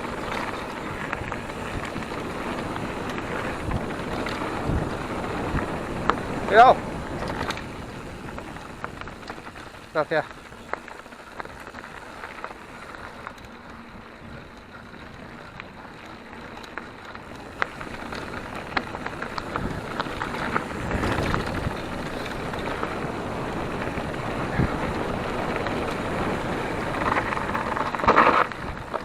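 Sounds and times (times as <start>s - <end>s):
wind on microphone: 0.0s - 9.6s, 17.7s - 29.0s
bike clicks and rattles: 0.0s - 29.0s
bike tyres on gravel trail: 0.0s - 29.0s.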